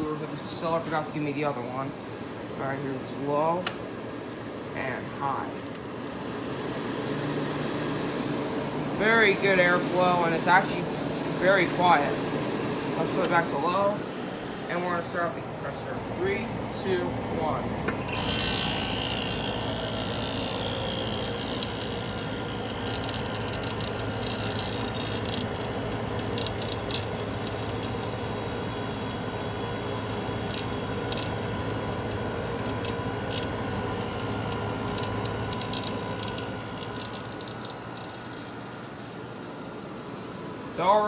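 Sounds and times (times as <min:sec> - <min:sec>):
air conditioner compressor hum: 0:00.0 - 0:41.0
blower fan rushing: 0:00.0 - 0:41.0.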